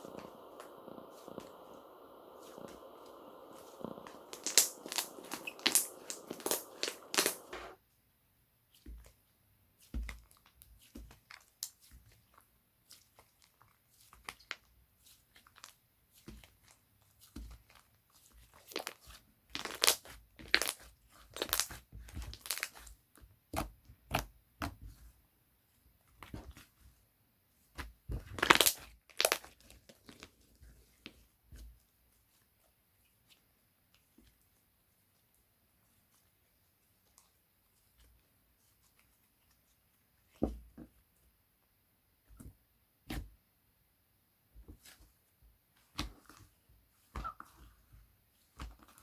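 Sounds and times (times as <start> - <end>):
slime squished by hand: 0.0 - 7.8, 27.8 - 30.3.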